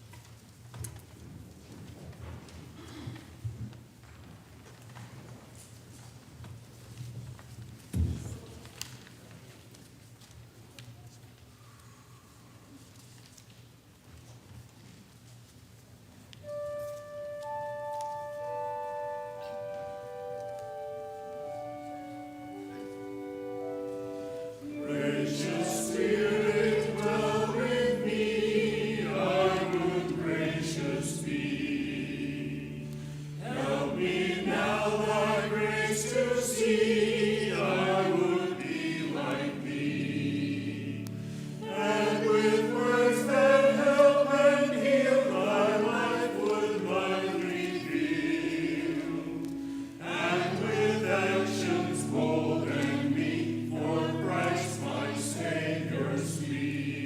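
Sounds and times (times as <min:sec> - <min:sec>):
choir singing a hymn: 0:16.4 - 0:57.0
organ chords: 0:16.4 - 0:57.0.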